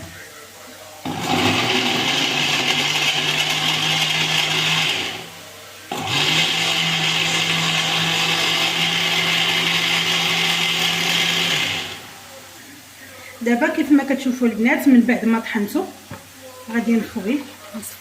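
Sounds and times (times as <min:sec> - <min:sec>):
electric blender running: 0:01.0 - 0:05.3, 0:05.9 - 0:12.1.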